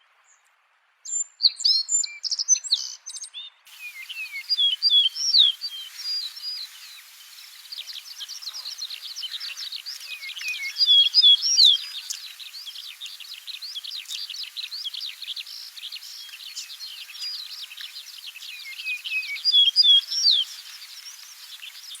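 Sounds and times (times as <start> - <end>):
songbirds chirping: 0.2 - 22.0
bird swooping song phrase: 3.7 - 22.0.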